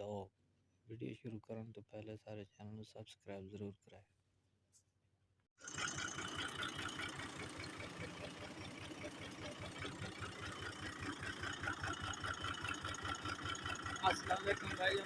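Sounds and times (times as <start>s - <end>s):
tractor diesel engine idling: 5.6s - 15.0s.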